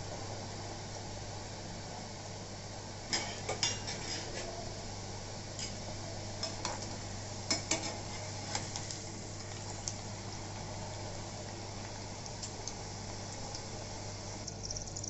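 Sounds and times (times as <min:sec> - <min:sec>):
food sizzling in hot oil: 0:00.3 - 0:04.4, 0:05.0 - 0:15.0
metal spoon scraping pan: 0:03.2 - 0:04.5.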